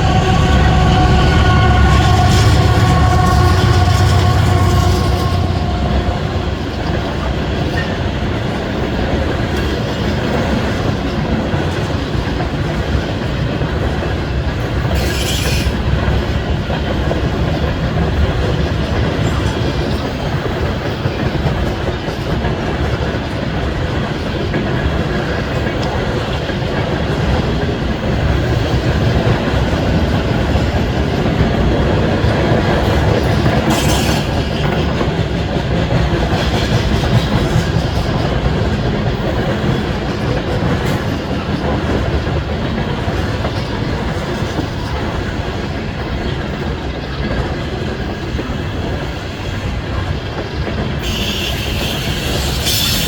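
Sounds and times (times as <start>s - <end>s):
high-pitched wheel squeals: 0.0s - 7.2s, 51.0s - 53.0s
train rolling past: 0.0s - 53.0s.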